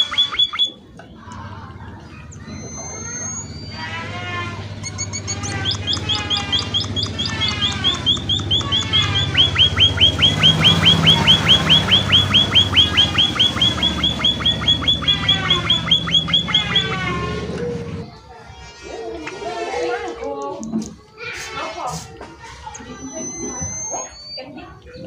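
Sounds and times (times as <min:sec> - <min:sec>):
bird calling in high chirps: 0:00.0 - 0:00.9, 0:02.0 - 0:17.8, 0:22.7 - 0:25.0.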